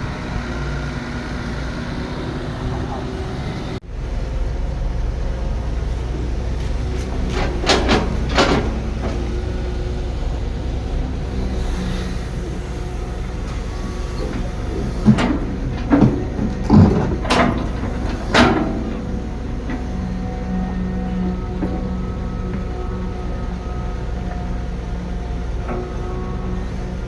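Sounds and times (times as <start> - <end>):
diesel engine running: 0.0 - 27.0
metallic clanks and knocks: 6.9 - 9.7, 13.6 - 22.9.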